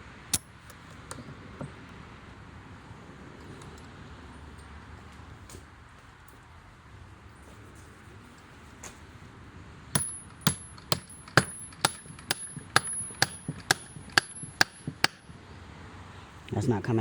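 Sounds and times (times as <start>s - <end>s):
hammer ringing on metal: 10.0s - 15.3s.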